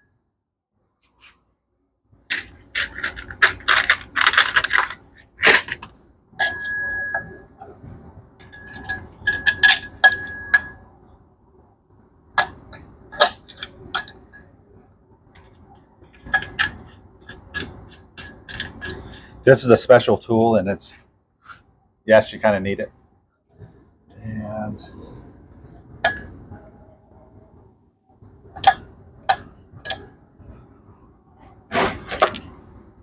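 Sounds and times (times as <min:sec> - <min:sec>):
metal parts clinking: 0:02.3 - 0:06.7, 0:08.4 - 0:10.6, 0:16.2 - 0:19.4.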